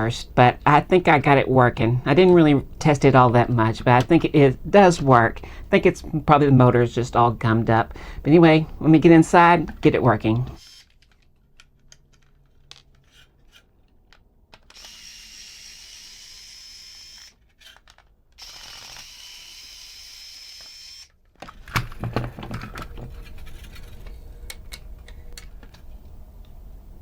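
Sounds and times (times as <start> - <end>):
plastic parts clicking and knocking: 9.6 - 15.0, 17.2 - 19.1, 20.6 - 26.1
electric screwdriver whirring: 10.5 - 11.1, 14.6 - 22.0.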